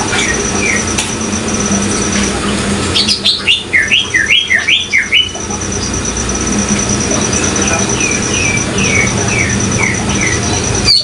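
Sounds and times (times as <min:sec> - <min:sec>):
fast-pulsing high trill: 0:00.0 - 0:11.0
bird chirping: 0:00.1 - 0:01.0, 0:02.9 - 0:06.3, 0:07.3 - 0:11.0.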